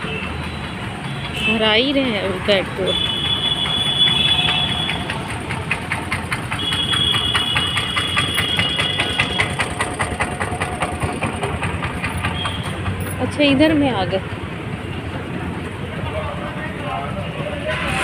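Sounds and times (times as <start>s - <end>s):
car engine idling: 0.0s - 17.6s
fast even ticking: 0.7s - 14.2s.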